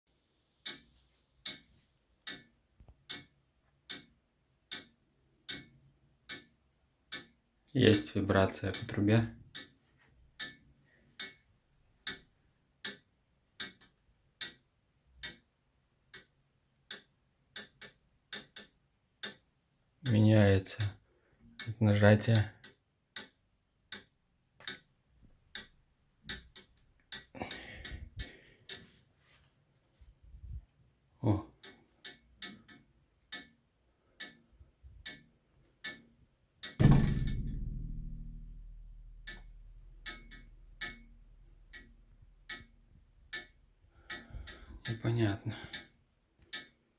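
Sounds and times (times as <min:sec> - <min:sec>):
heating pipe ticking: 0:00.6 - 0:03.3, 0:03.9 - 0:04.1, 0:04.7 - 0:06.5, 0:07.1 - 0:09.8, 0:10.4 - 0:10.6, 0:11.2 - 0:11.4, 0:12.0 - 0:13.0, 0:13.6 - 0:14.6, 0:15.2 - 0:15.4, 0:16.9 - 0:19.4, 0:20.0 - 0:21.0, 0:21.6 - 0:24.9, 0:25.5 - 0:28.9, 0:31.5 - 0:46.8
heating pipe knocking clicks: 0:36.6 - 0:38.4.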